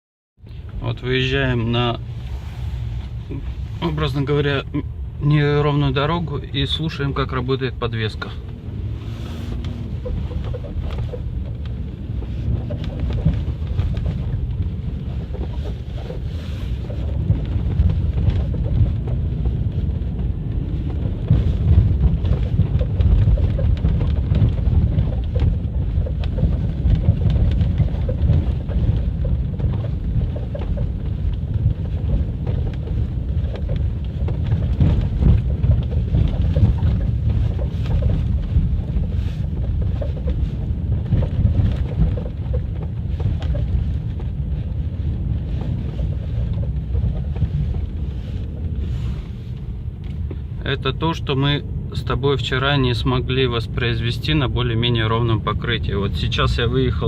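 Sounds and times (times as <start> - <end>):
low rumble from tyres: 0.4 - 57.0
suspension knocks and creaks: 5.3 - 57.0.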